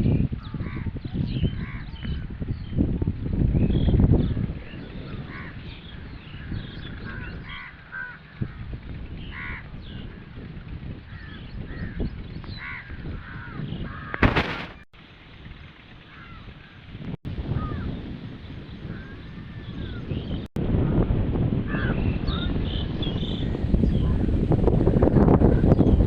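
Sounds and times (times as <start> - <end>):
loud sharp knock: 14.2 - 14.8.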